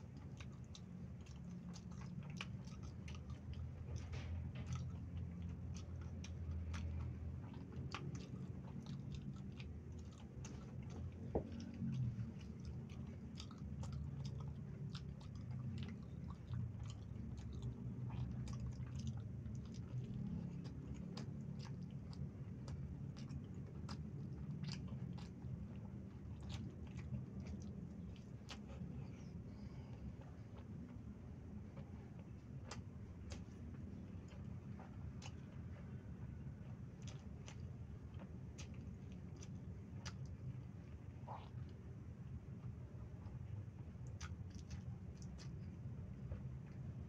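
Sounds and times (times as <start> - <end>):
steady low hum: 0.0 - 47.0
person chewing snacks: 0.1 - 29.8.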